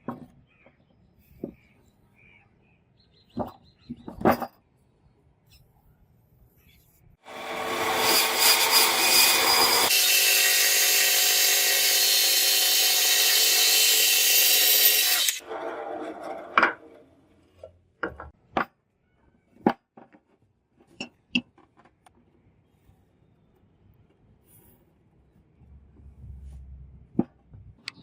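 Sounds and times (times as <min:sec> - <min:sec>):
electric power tool whining: 0:07.3 - 0:15.4.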